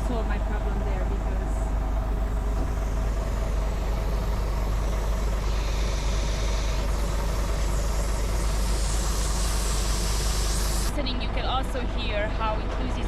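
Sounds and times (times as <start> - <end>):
diesel truck engine idling: 0.0 - 13.0
faint hiss of air: 1.8 - 10.9.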